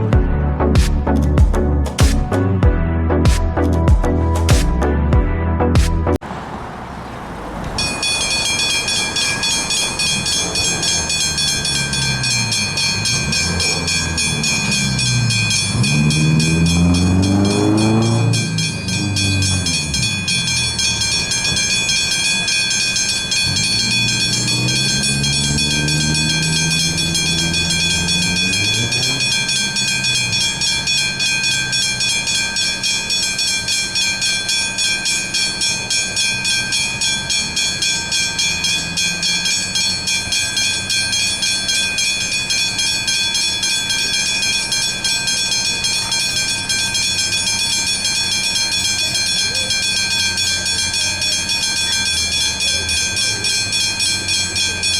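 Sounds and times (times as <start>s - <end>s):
level crossing warning bells: 0.0s - 4.8s, 6.1s - 54.9s
train motor tones: 6.7s - 32.9s.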